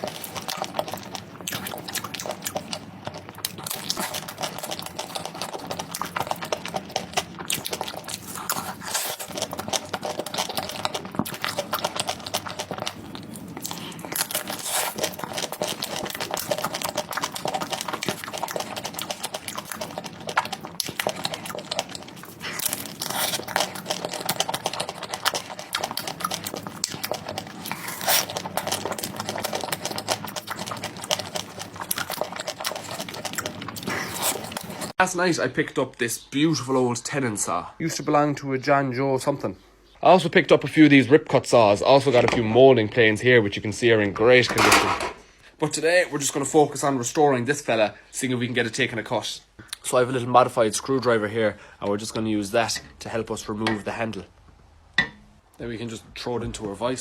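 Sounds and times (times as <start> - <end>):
chewing and crunching sweets: 0.0 - 35.0.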